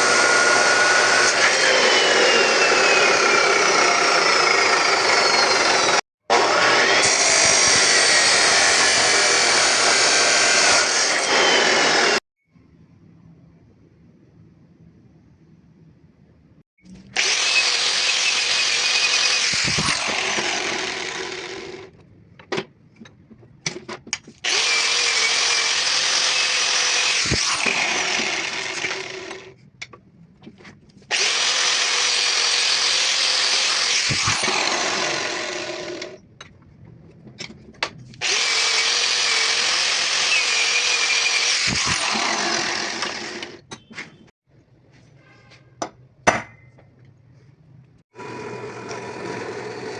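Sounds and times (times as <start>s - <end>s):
electric power tool running: 0.0s - 12.2s, 17.1s - 21.9s, 24.5s - 29.5s, 31.1s - 36.2s, 38.2s - 43.6s, 48.2s - 49.9s.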